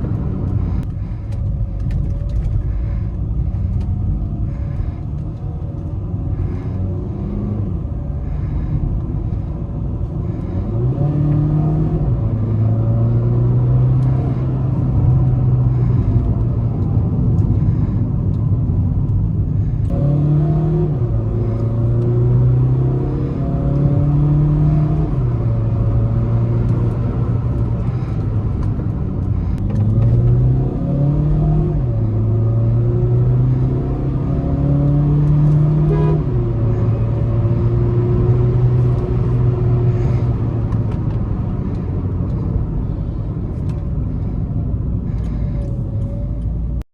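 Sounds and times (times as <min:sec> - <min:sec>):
diesel car engine accelerating: 0:00.0 - 0:46.9.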